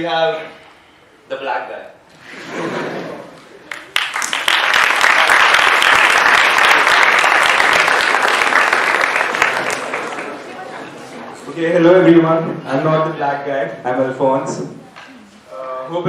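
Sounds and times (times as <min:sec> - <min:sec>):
audience applauding: 0:03.6 - 0:11.1.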